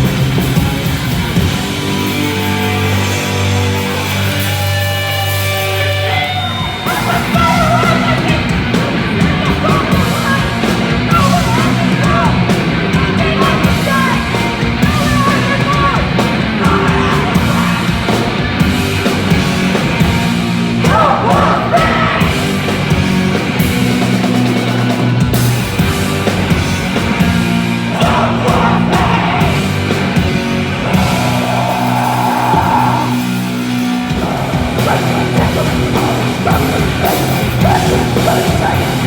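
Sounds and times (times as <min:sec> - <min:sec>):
heavy distorted rock music: 0:00.0 - 0:39.0
shouted vocal: 0:05.7 - 0:18.1, 0:20.8 - 0:22.6, 0:27.8 - 0:29.9, 0:30.6 - 0:39.0.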